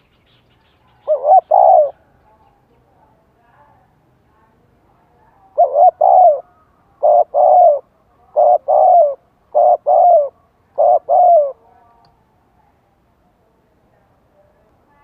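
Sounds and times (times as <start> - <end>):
dove cooing: 1.0 - 2.1, 5.4 - 11.7.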